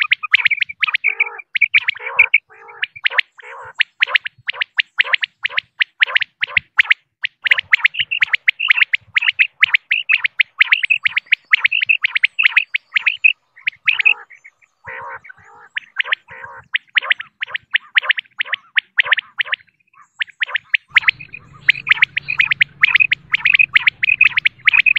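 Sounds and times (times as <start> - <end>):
quail short high calls: 0.0 - 24.9
soft low rasping notes: 20.9 - 24.9.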